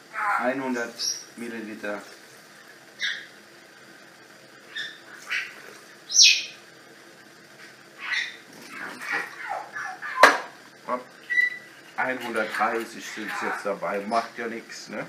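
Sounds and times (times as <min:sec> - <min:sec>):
small bird chirping: 0:03.0 - 0:03.4, 0:04.7 - 0:06.6, 0:08.0 - 0:10.2, 0:11.2 - 0:14.4.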